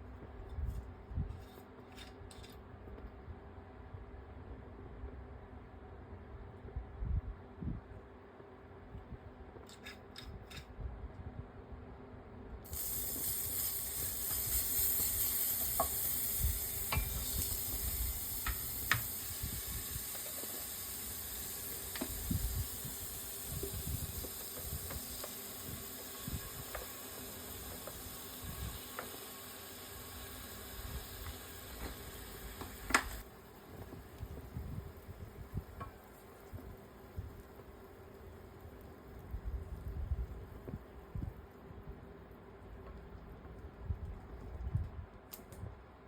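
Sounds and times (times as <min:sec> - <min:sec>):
stir-fry sizzling in a pan: 0:12.7 - 0:39.1.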